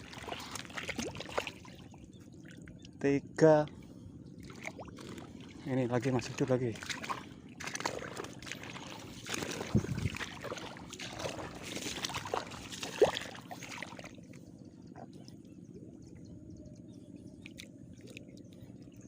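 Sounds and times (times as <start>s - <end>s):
footsteps sloshing through mud: 0.0s - 2.6s, 4.4s - 14.4s.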